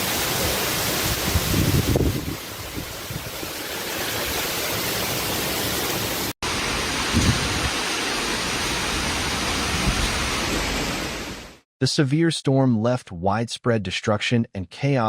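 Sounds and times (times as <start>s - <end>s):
heavy rain hissing: 0.0s - 11.6s.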